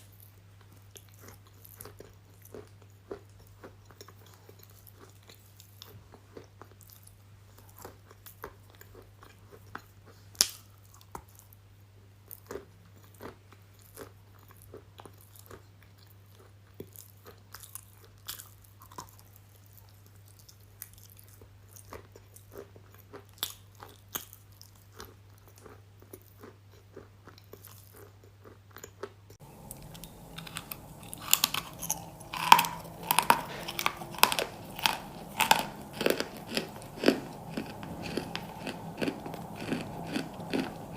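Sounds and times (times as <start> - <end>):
chewing and mouth sounds: 12.3 - 40.9
crunchy bites: 29.4 - 40.9
faint low hum: 29.4 - 40.9.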